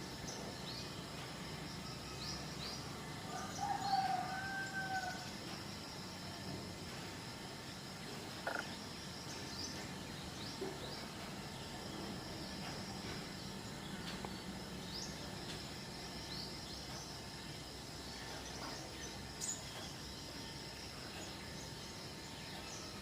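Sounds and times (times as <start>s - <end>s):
high insect drone: 0.0s - 23.0s
small birds chirping: 8.2s - 23.0s.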